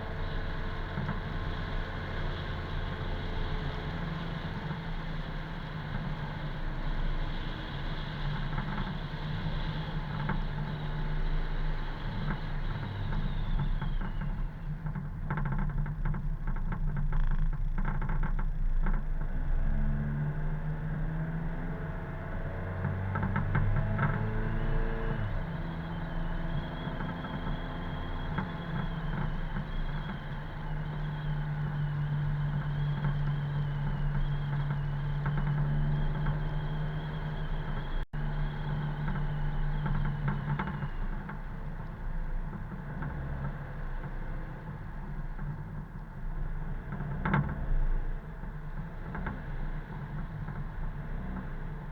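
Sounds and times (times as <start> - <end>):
road noise: 0.0 - 51.9
car engine running: 23.1 - 46.8.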